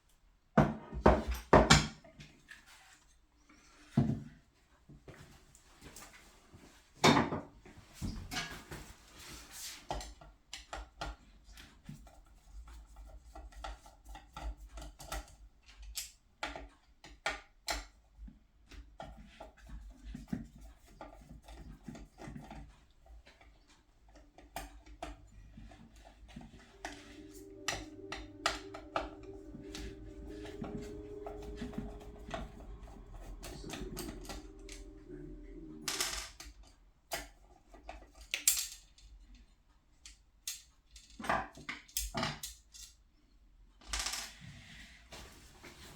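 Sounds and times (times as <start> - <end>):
steady hum with pitched tones: 26.7 - 36.2.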